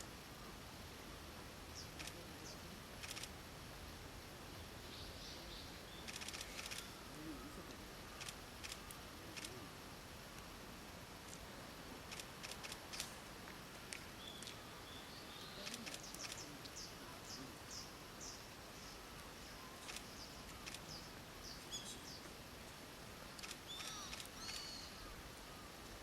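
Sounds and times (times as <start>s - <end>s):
sharp clicks: 3.0s - 3.3s, 6.1s - 6.9s, 8.2s - 9.6s, 12.1s - 13.2s, 13.9s - 14.6s, 15.6s - 16.8s, 19.9s - 20.8s, 23.4s - 24.7s
small bird chirping: 4.9s - 7.4s, 13.9s - 22.3s, 23.4s - 25.6s.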